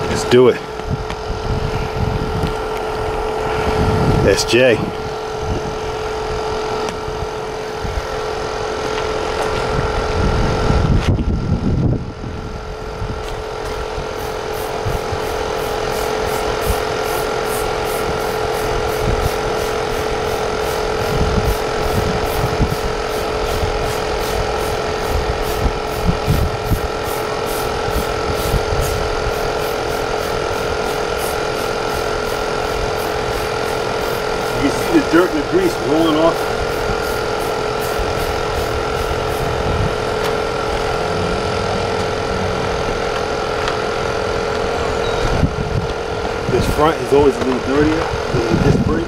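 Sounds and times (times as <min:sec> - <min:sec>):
motor humming: 0:00.0 - 0:49.0
loud rushing noise: 0:12.6 - 0:49.0.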